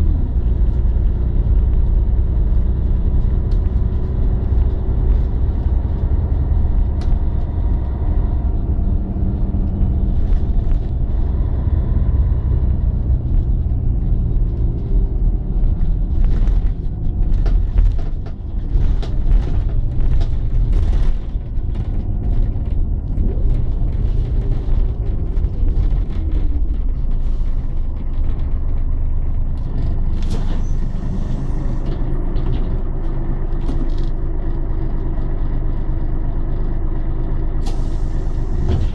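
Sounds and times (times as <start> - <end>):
bus diesel engine rumbling: 0.0 - 38.9
air brake hisses: 37.6 - 38.8.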